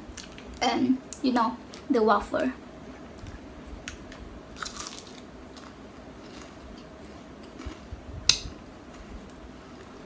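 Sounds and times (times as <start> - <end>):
quiet chewing: 4.6 - 8.0.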